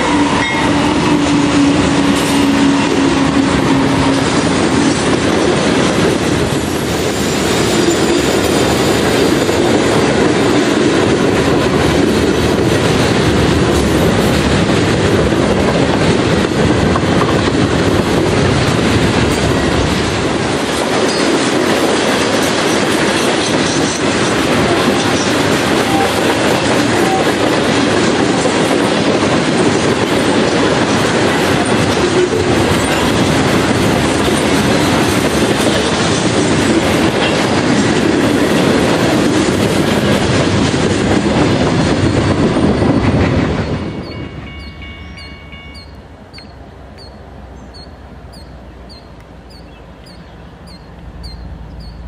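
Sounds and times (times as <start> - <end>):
freight train wheels rumbling: 0.0 - 52.0
faint high chirp: 44.0 - 52.0.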